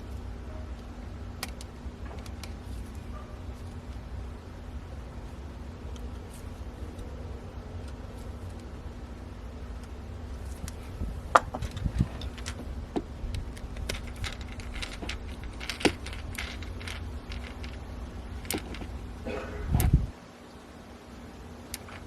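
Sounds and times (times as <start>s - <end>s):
steady low rumble: 0.0s - 20.2s
small hardware clicking and clinking: 9.8s - 19.0s.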